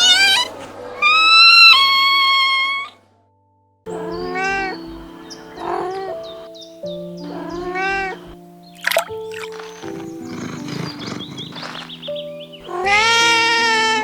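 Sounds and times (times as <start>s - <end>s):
cat meowing: 0.0s - 3.0s, 4.0s - 5.0s, 7.3s - 12.0s, 12.6s - 14.0s
background music: 0.0s - 14.0s.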